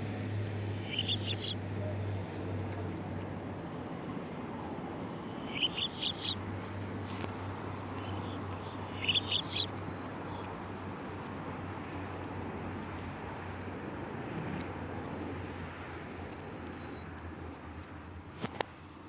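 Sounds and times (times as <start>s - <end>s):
steady background noise: 0.0s - 19.0s
bird chirping: 0.8s - 1.6s, 5.4s - 6.4s, 8.0s - 9.7s.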